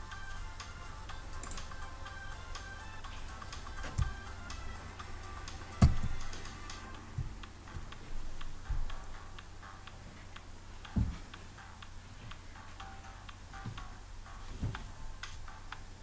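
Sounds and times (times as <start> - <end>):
steady low hum: 0.0 - 16.0
dull thumps: 3.1 - 15.9.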